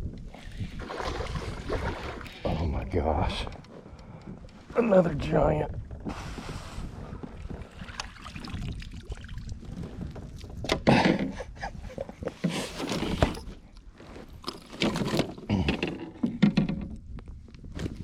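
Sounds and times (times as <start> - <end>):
fish splashing: 0.7 - 2.4.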